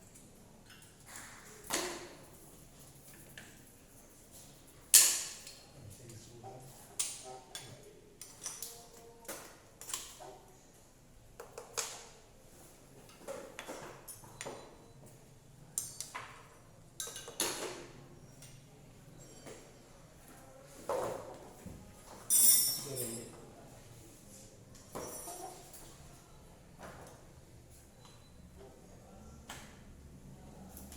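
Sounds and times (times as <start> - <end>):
tools and metal parts clinking: 19.2 - 19.7, 22.2 - 23.4, 24.8 - 26.0.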